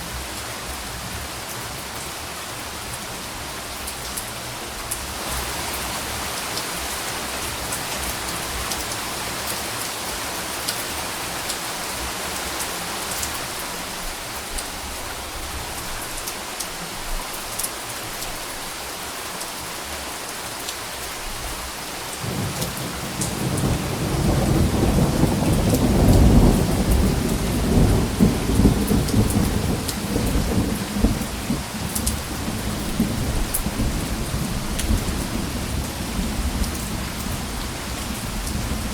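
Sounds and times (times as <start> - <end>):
steady rain falling: 0.0 - 38.9
rumble of thunder: 22.2 - 38.9.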